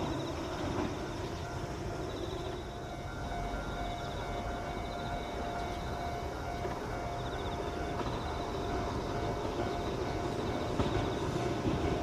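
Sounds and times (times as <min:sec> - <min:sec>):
electric train rumble: 0:00.0 - 0:12.0.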